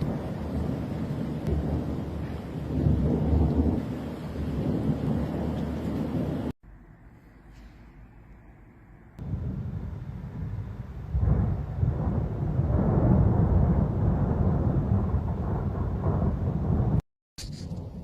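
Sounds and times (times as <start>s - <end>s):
thunder rumbling: 0.0s - 6.5s, 9.2s - 17.0s.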